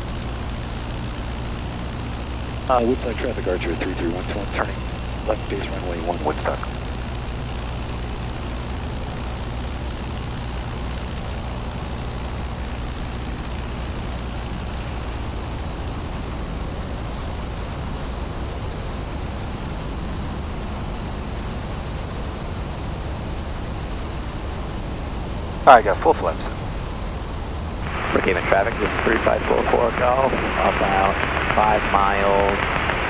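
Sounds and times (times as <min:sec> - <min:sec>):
airplane engine and propeller drone: 0:00.0 - 0:33.0.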